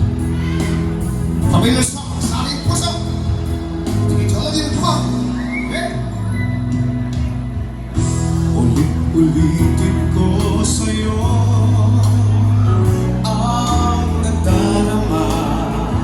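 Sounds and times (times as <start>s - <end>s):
band music over loudspeaker: 0.0s - 16.0s
heavy sustained bass notes: 0.0s - 16.0s
man singing: 8.4s - 16.0s.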